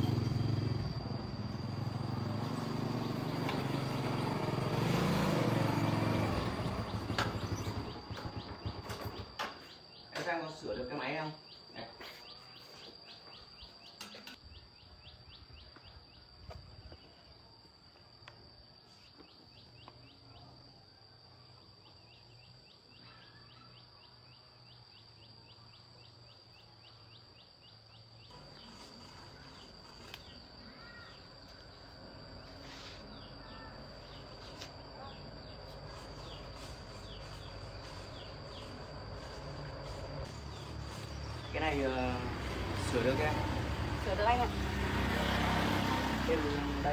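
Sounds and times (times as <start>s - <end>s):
insects chirping: 0.0s - 46.9s
bird calls: 6.2s - 16.3s, 28.0s - 44.6s.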